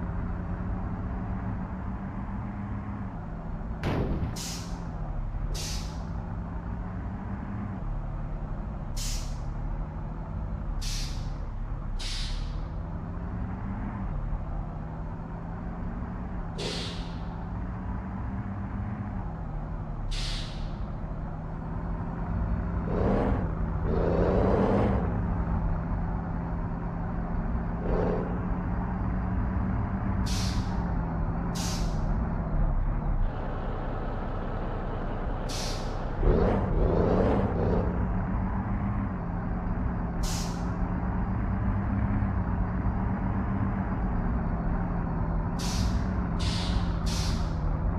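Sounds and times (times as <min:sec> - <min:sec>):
truck diesel engine running: 0:00.0 - 0:47.9
air brake hisses: 0:04.4 - 0:04.8, 0:05.6 - 0:06.1, 0:09.0 - 0:09.4, 0:10.8 - 0:11.3, 0:12.0 - 0:12.6, 0:16.6 - 0:17.3, 0:20.1 - 0:20.8, 0:30.2 - 0:30.8, 0:31.6 - 0:32.0, 0:35.5 - 0:36.1, 0:40.2 - 0:40.7, 0:45.6 - 0:47.6.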